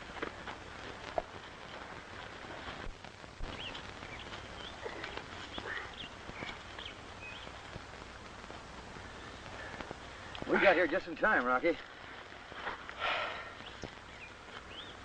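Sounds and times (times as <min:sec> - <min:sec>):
birds chirping: 0:00.0 - 0:15.0
film soundtrack hiss: 0:00.0 - 0:15.0.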